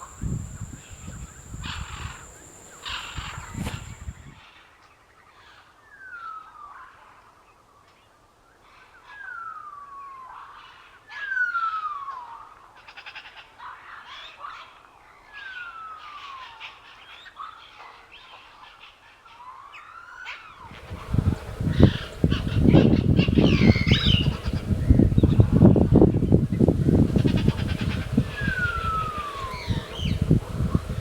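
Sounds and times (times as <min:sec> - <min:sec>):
bird chirps: 0:00.0 - 0:04.3, 0:20.7 - 0:31.0
bird whistling long notes: 0:00.0 - 0:04.4, 0:26.6 - 0:31.0.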